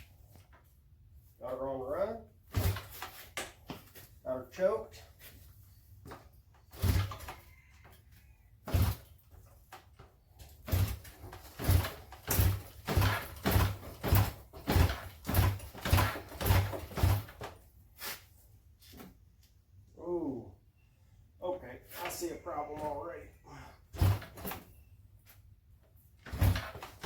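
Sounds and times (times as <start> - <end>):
motorcycle kick-starter thumps: 2.5 - 4.1, 6.0 - 7.4, 8.6 - 17.6, 23.9 - 24.7, 26.2 - 27.0.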